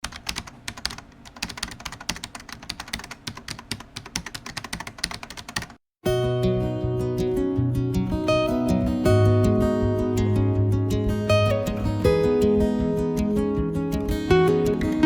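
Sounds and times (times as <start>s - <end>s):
fast keyboard typing: 0.0s - 5.8s
acoustic guitar music: 6.0s - 15.0s.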